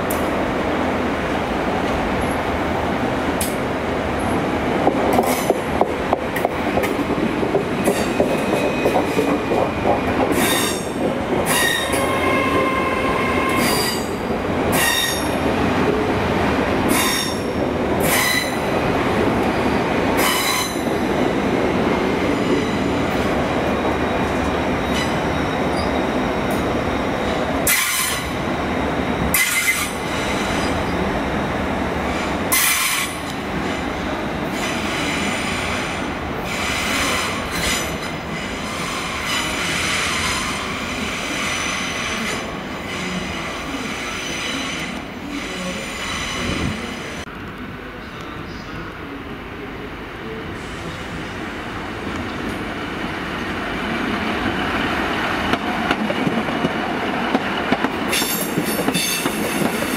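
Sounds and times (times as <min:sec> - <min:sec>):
train wheels rumbling on track: 0:00.0 - 0:59.9
high wheel squeals: 0:22.5 - 0:31.0.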